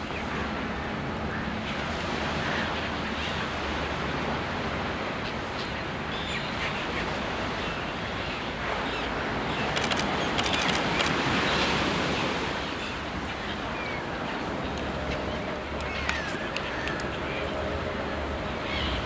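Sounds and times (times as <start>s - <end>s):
surf at shoreline: 0.0s - 19.0s
wind: 0.0s - 19.0s
faint high bird calls: 8.9s - 17.5s
sharp clicks: 9.7s - 11.2s.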